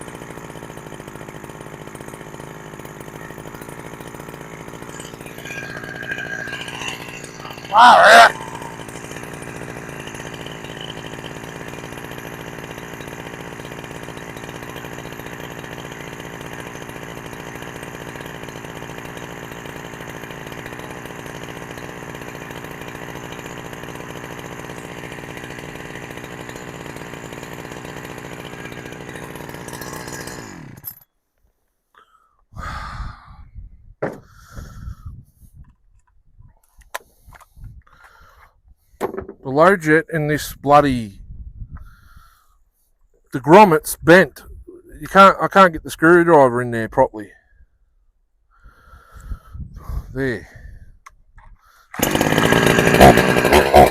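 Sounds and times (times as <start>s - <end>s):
chainsaw running: 0.0s - 31.1s, 51.7s - 53.9s
knocks and clunks: 34.0s - 34.3s, 39.0s - 39.4s.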